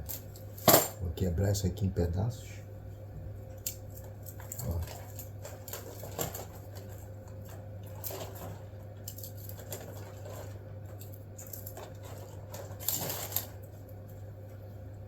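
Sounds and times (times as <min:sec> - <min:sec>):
low steady hum: 0:00.0 - 0:15.0
kindling clatter: 0:04.4 - 0:13.7
paper and kindling rustling: 0:04.4 - 0:13.7.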